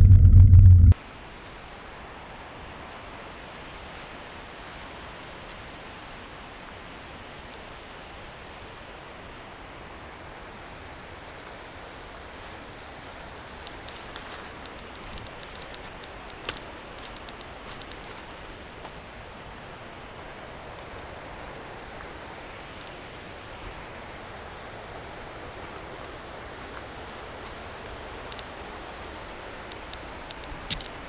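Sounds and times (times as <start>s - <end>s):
rushing background noise: 0.0s - 1.0s.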